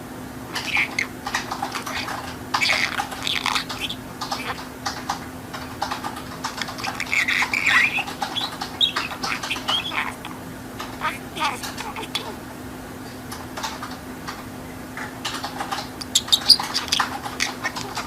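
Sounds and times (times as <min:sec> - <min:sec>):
steady low hum: 0:00.0 - 0:18.0
budgerigar chattering: 0:00.5 - 0:04.7, 0:06.5 - 0:12.4, 0:16.0 - 0:18.0.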